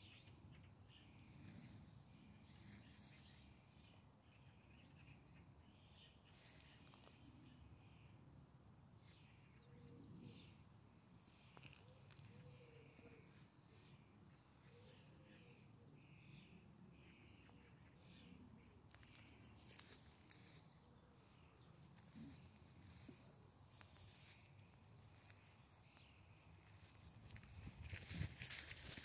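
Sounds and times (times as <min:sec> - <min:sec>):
soft rustles: 0:26.4 - 0:29.0.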